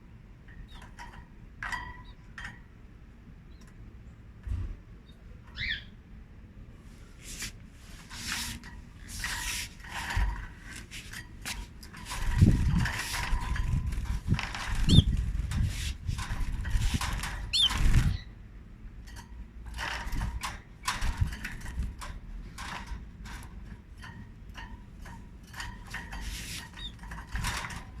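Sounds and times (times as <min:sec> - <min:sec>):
canaries chirping: 0:05.0 - 0:06.0, 0:08.0 - 0:18.4, 0:24.6 - 0:27.9
small clicks and rustles: 0:07.1 - 0:18.3, 0:19.0 - 0:28.0.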